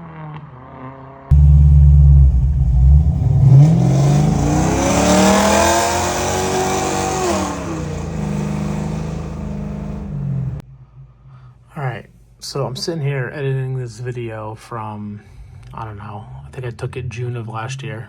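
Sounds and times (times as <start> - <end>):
car engine revving and idling: 1.3 - 10.6.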